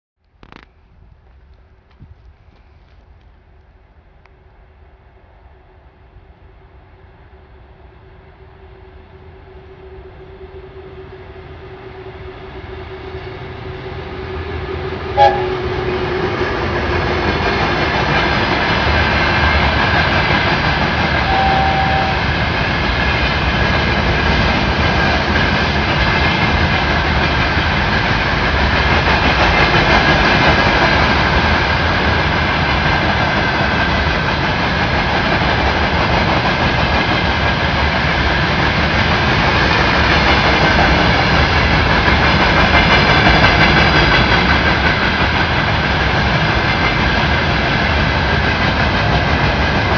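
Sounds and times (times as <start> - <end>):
train wheels rumbling on rails: 0.4 - 49.9
high whine: 7.9 - 17.5, 21.0 - 22.8.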